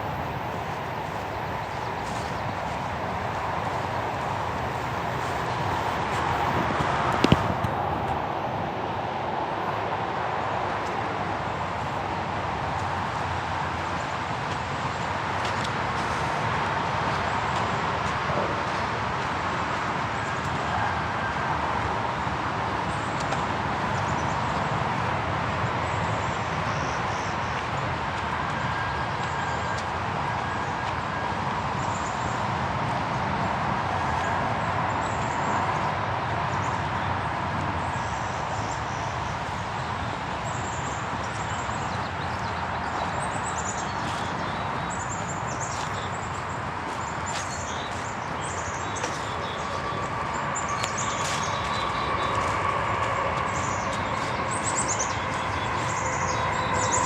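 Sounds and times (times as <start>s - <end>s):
footsteps on a trail: 0.0s - 8.3s, 39.4s - 57.0s
steady outdoor hiss: 0.0s - 57.0s.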